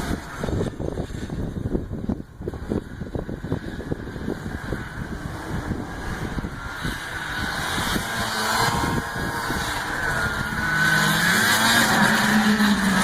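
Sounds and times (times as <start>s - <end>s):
snowmobile two-stroke engine: 0.0s - 13.0s.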